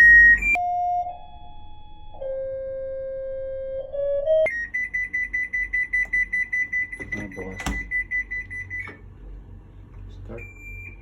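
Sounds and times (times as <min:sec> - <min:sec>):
washing machine chime melody: 0:04.4 - 0:09.0, 0:10.3 - 0:11.0.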